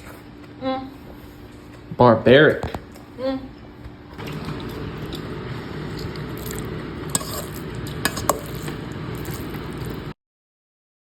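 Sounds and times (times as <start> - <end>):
spoon scraping and clinking pan: 7.1 - 8.7.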